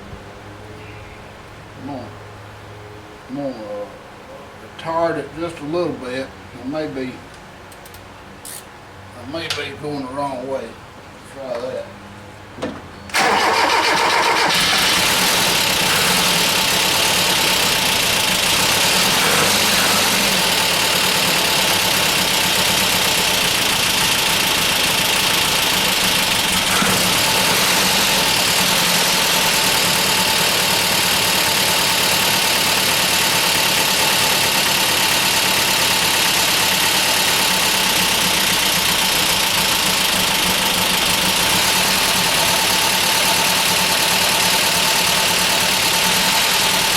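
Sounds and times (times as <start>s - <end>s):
misfiring engine running: 13.1s - 46.9s.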